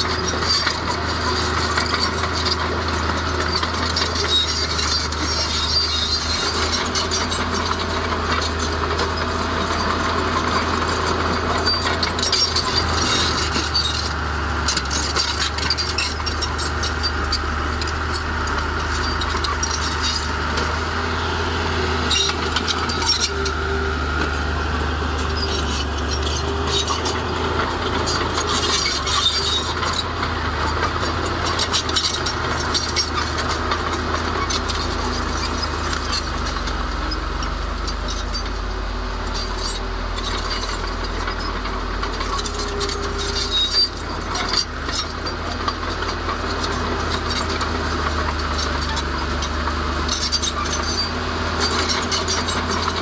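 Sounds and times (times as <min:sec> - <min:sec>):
diesel machinery engine drone: 0:00.0 - 0:53.0
metal clanks and rattles: 0:00.3 - 0:21.0.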